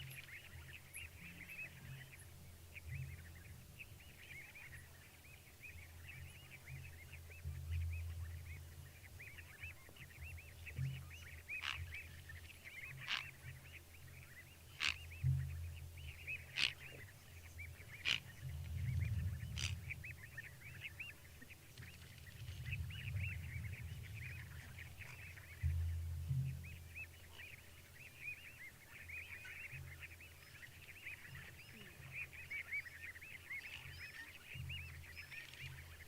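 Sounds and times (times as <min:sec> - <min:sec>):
chorus of small animal calls: 0:10.9 - 0:14.0, 0:14.6 - 0:15.3, 0:16.0 - 0:25.6
low rumble: 0:17.1 - 0:28.0.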